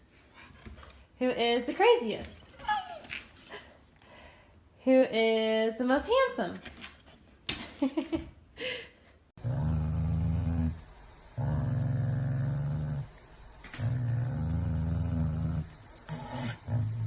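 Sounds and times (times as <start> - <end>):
dog growling: 9.4 - 10.8, 11.4 - 17.0.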